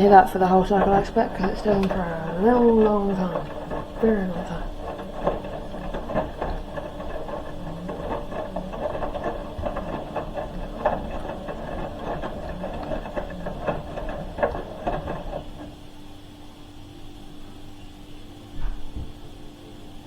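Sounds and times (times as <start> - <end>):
load clunking in drum: 0.0 - 15.9
washing machine drum humming: 0.0 - 20.0.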